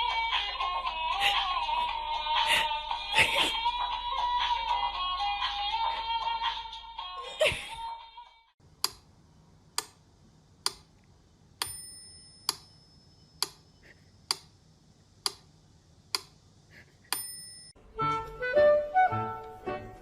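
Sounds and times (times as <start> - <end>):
regular ticking: 8.6 - 17.8.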